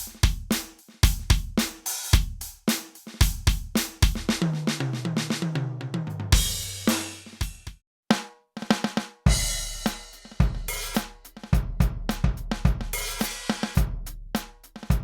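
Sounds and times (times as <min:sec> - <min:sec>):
drum beat with bass drum and snare: 0:00.0 - 0:15.0
electronic drum tom fill: 0:06.4 - 0:07.8, 0:09.3 - 0:14.0
crash cymbal: 0:09.3 - 0:11.0.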